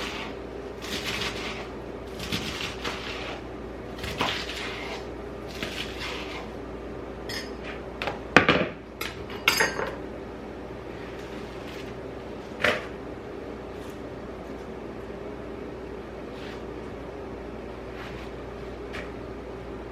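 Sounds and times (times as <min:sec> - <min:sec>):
faint steady hum: 0:00.0 - 0:19.9
dishes clinking and knocking: 0:08.4 - 0:10.0.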